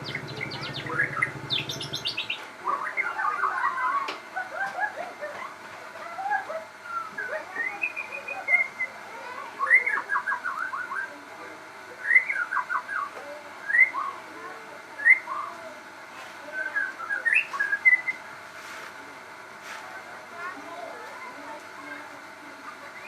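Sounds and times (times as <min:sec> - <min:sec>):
bird singing whistled song: 0:06.8 - 0:08.9, 0:09.6 - 0:11.1, 0:12.0 - 0:14.2, 0:15.0 - 0:15.5, 0:16.6 - 0:18.2.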